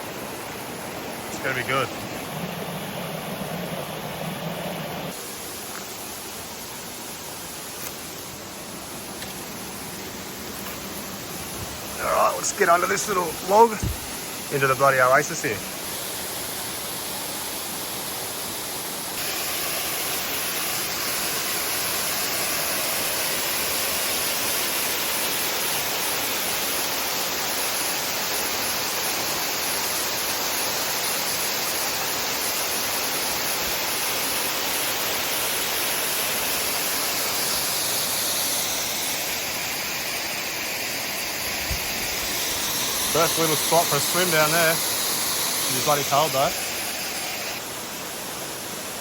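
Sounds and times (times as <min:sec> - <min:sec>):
water rushing over waterfall: 0:19.2 - 0:49.0.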